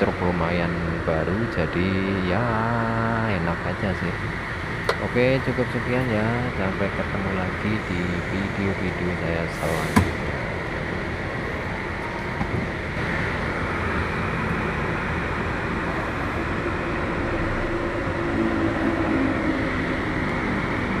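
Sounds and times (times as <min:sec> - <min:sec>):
truck diesel engine rumbling: 0:00.0 - 0:21.0.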